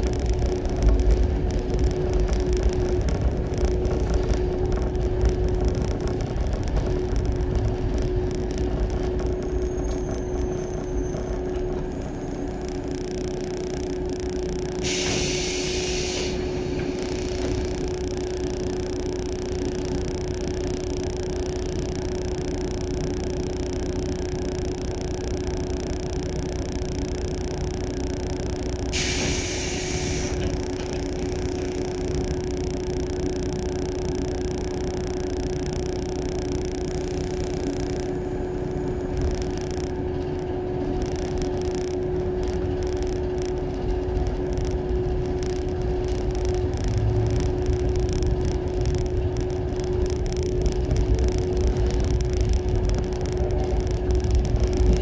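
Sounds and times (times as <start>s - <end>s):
train wheels rumbling on rail: 0.0s - 12.9s, 14.8s - 18.0s, 28.9s - 31.8s, 42.0s - 55.0s
constant hum: 0.0s - 55.0s
short hiss bursts: 14.8s - 16.5s.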